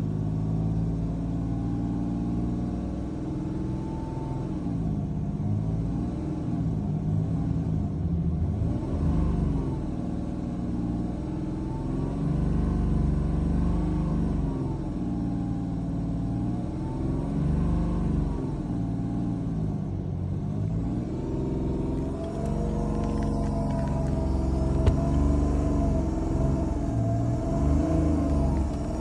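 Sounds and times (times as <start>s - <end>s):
extraneous engine noise: 2.5s - 29.0s
diesel engine revving: 11.1s - 29.0s.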